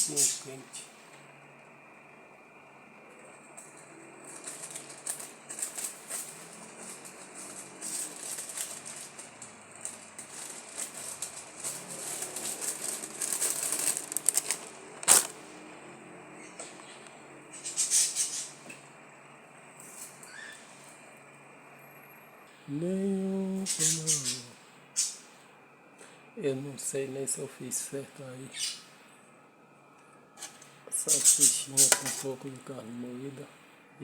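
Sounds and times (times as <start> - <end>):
plastic wrapping rustling: 3.8 - 15.4.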